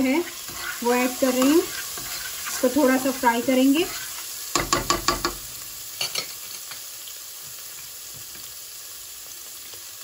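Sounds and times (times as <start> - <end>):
spatula scraping a pot: 0.0 - 5.2
paste sizzling in hot oil: 0.0 - 10.0.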